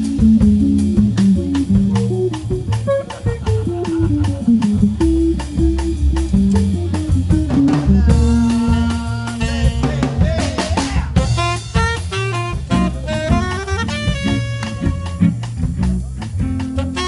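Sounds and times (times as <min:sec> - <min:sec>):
electric guitar melody: 0:00.0 - 0:10.0, 0:11.2 - 0:17.0
drum kit: 0:00.0 - 0:17.0
walking double bass: 0:00.0 - 0:17.0.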